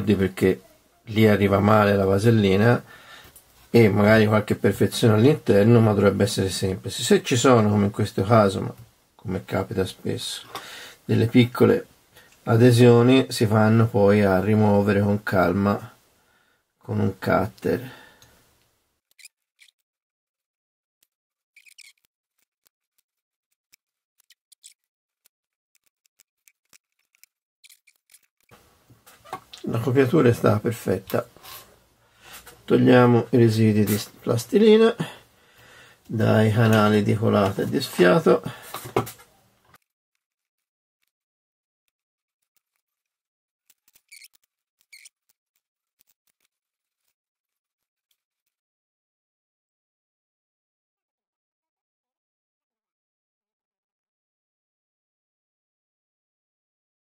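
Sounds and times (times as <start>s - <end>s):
knife blade scraping plasticine: 19.1s - 19.8s, 21.6s - 23.1s, 23.7s - 28.6s, 42.4s - 47.2s
scissors snipping: 21.6s - 28.6s.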